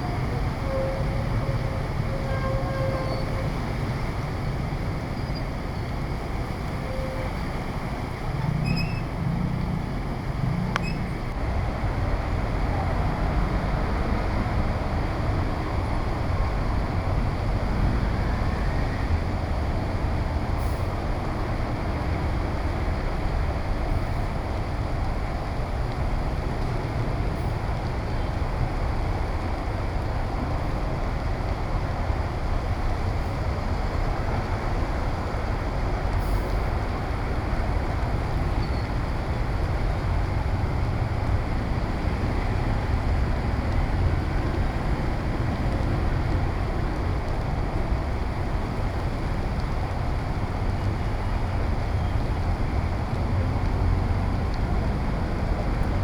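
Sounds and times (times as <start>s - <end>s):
passing traffic: 0.0s - 56.0s
rain rushing: 0.0s - 56.0s
wind rumble on microphone: 0.0s - 56.0s.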